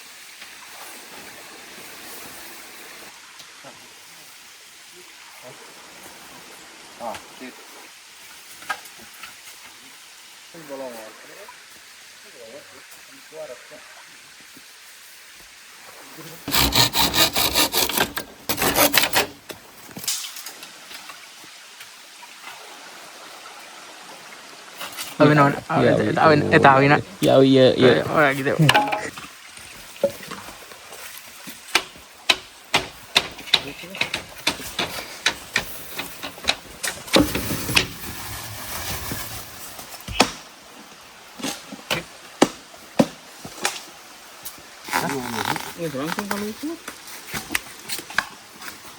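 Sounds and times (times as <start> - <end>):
hand saw strokes: 16.4 - 19.4.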